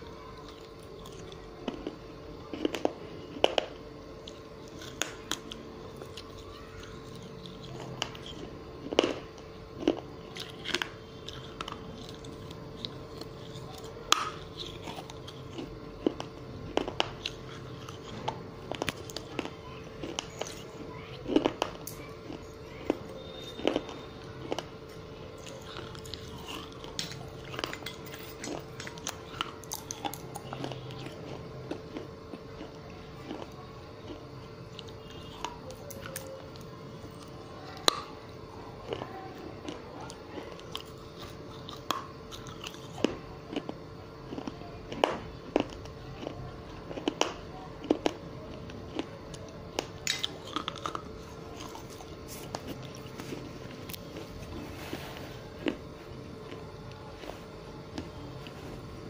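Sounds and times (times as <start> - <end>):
chewing with sharp crunches: 0.0 - 59.0.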